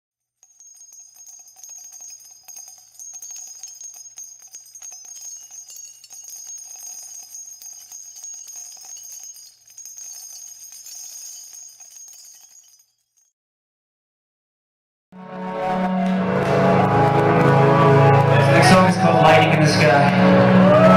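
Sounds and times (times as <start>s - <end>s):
shaken bells jingling: 0.4s - 13.3s.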